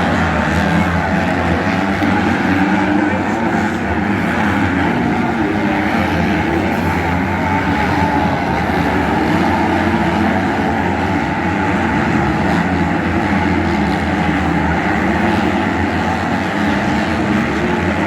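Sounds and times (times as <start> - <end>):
motocross bike engines racing: 0.0 - 18.0.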